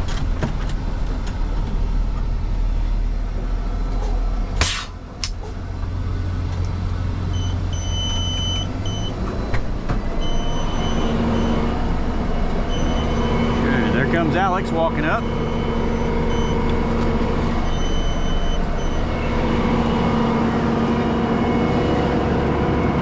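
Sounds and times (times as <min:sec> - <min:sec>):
diesel truck engine running: 0:00.0 - 0:23.0
short hiss: 0:04.6 - 0:05.0
high electronic beep: 0:12.7 - 0:13.5, 0:17.6 - 0:19.4.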